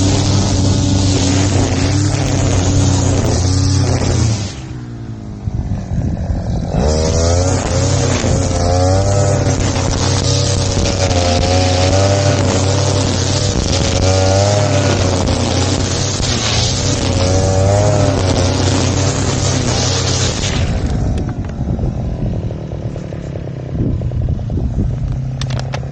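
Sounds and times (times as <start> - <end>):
lawn mower engine running: 0.0 - 25.9.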